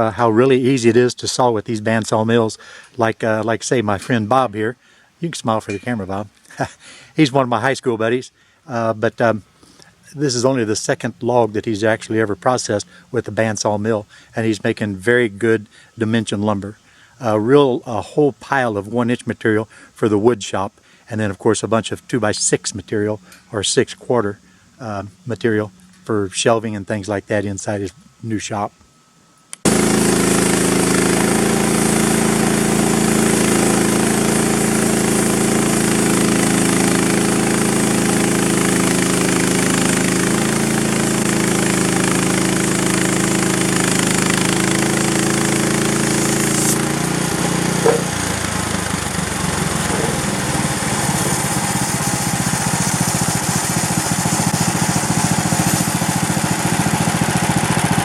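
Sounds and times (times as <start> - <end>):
small gasoline engine running: 29.6 - 58.0.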